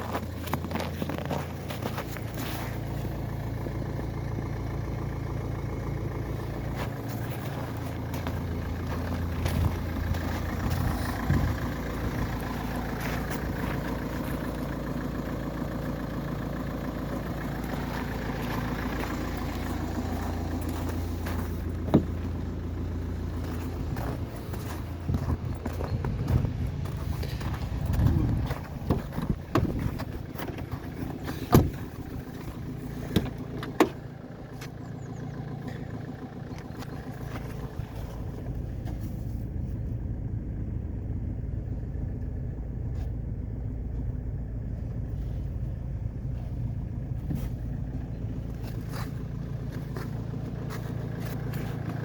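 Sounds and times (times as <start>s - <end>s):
diesel engine idling: 0.0s - 52.0s
sharp knocks and clunks: 21.8s - 22.4s, 27.9s - 34.1s.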